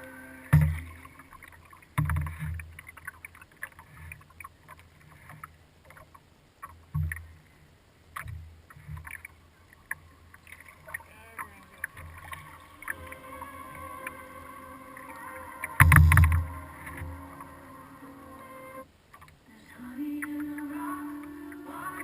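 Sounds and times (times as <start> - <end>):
paddle splashes and drips: 0.4 - 17.6
heavy thumps through boat: 15.8 - 16.6.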